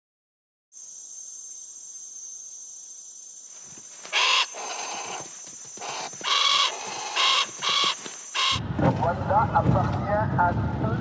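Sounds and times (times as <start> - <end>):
bird harsh calls: 4.0 - 8.6.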